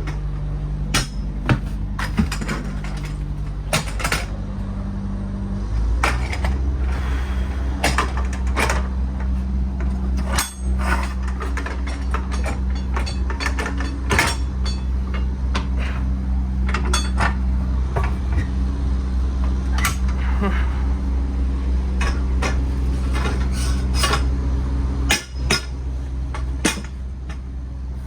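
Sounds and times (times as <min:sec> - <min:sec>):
metallic knocks and clatter: 0:00.0 - 0:04.4, 0:07.8 - 0:18.6, 0:25.1 - 0:27.4
low machine hum: 0:00.0 - 0:28.0.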